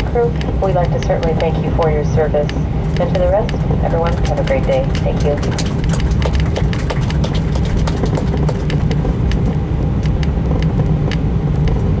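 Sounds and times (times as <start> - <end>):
aircraft cabin rumble: 0.0 - 12.0
small clicks and rattles: 2.4 - 11.9.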